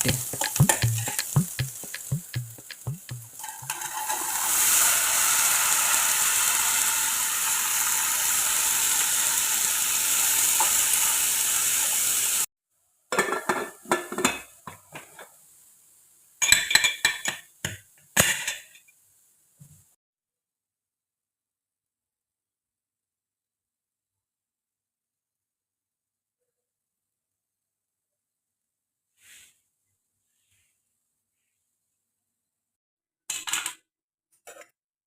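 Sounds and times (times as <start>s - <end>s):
food sizzling in frying pan: 0.0s - 12.5s, 13.8s - 19.5s.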